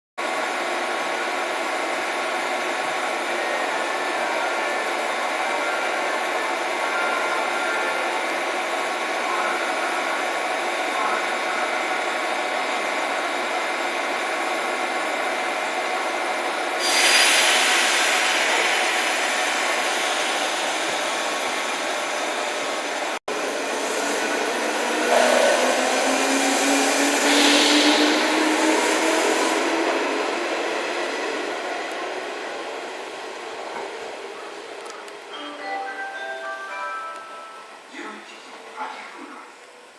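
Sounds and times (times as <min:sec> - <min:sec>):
electric train rumbling hiss: 0:00.3 - 0:39.9
loud hiss of air: 0:16.8 - 0:20.9, 0:25.0 - 0:30.0.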